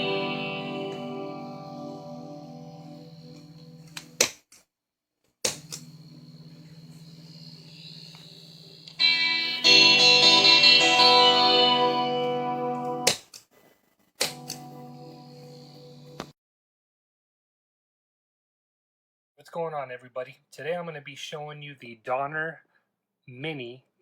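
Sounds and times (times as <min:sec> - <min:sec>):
distorted guitar chord: 0:00.0 - 0:04.2, 0:08.9 - 0:13.1, 0:14.3 - 0:16.3
electric guitar note ringing: 0:00.0 - 0:04.2, 0:09.0 - 0:13.1, 0:14.3 - 0:16.3.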